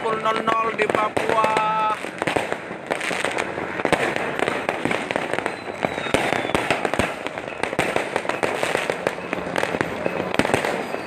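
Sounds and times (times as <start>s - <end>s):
continuous crackling: 0.0s - 11.0s
firecrackers banging and popping: 0.0s - 11.0s
faint falling whistle: 5.4s - 6.6s.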